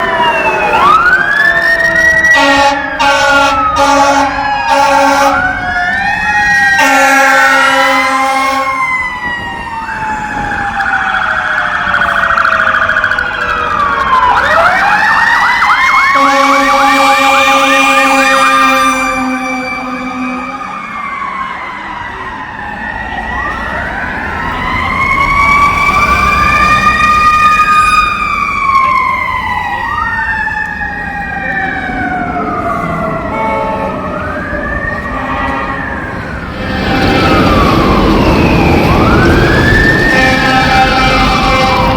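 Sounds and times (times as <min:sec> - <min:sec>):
sirens wailing and yelping: 0:00.0 - 0:41.9
air horns blasting: 0:02.2 - 0:05.7, 0:06.7 - 0:09.2, 0:16.0 - 0:21.0, 0:32.7 - 0:41.9.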